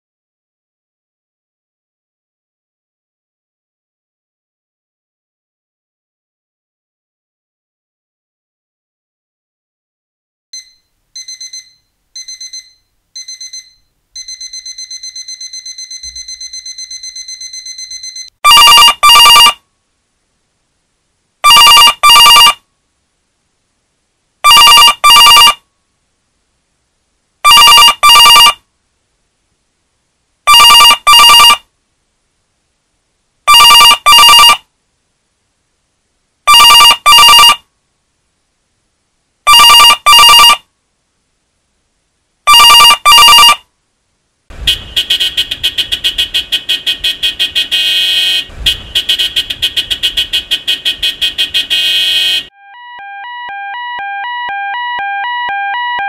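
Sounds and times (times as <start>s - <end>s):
telephone ringing in double rings: 10.6s - 18.3s
alarm clock beeping: 10.6s - 18.4s.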